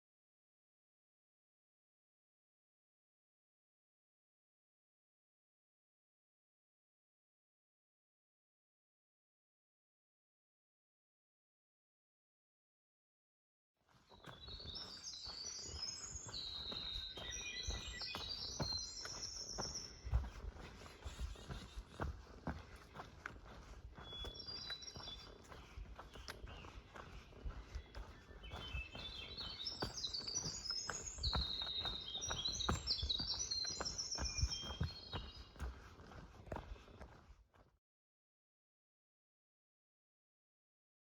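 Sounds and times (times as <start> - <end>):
footsteps on a trail: 13.9 - 37.7
songbirds singing: 14.0 - 37.2
birds chirping: 14.1 - 37.2.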